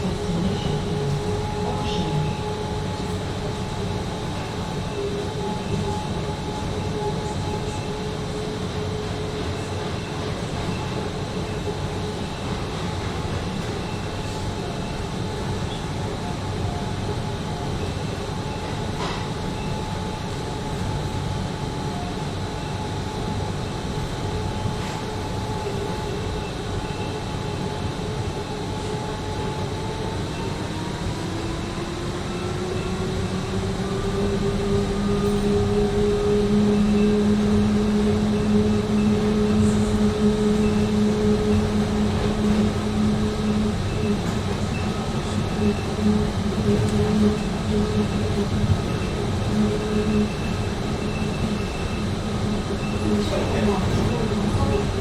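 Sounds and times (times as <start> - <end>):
train carriage rumbling on track: 0.0 - 55.0.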